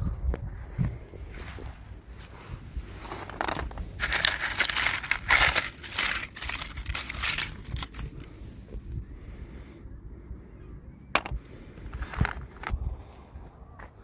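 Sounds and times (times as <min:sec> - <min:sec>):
plastic packaging crinkling: 0:03.1 - 0:08.3.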